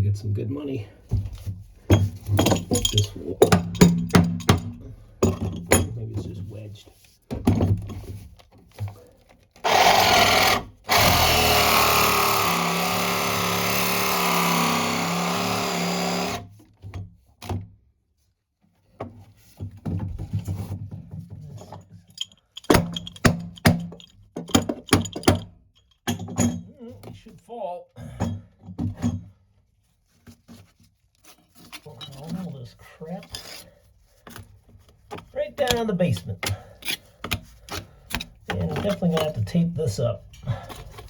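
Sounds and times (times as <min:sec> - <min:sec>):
knocks and clatter of pipe: 0:01.1 - 0:06.4, 0:07.2 - 0:09.1, 0:18.9 - 0:27.2, 0:28.1 - 0:29.4
battery saw cutting pipe: 0:09.6 - 0:16.5.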